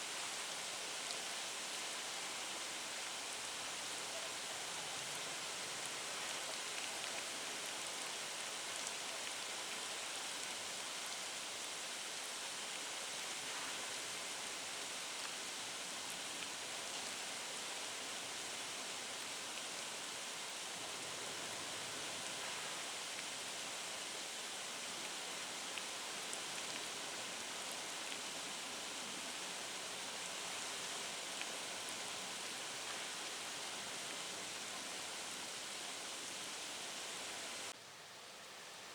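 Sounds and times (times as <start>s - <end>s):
heavy rain hissing: 31.6s - 37.7s.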